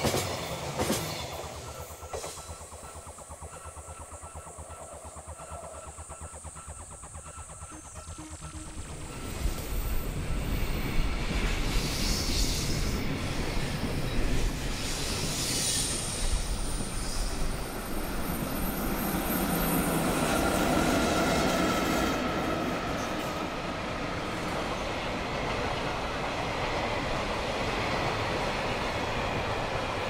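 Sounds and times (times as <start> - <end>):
train wheels rumbling on rail: 0.0 - 30.0
thin high tone: 1.8 - 11.2.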